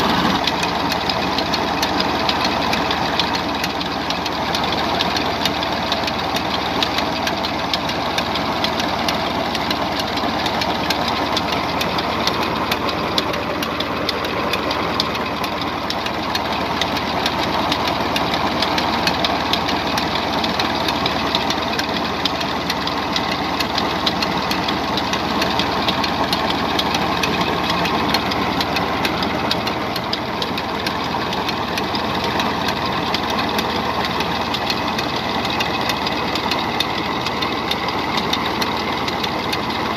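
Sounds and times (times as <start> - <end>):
tractor engine clattering under load: 0.0 - 39.9.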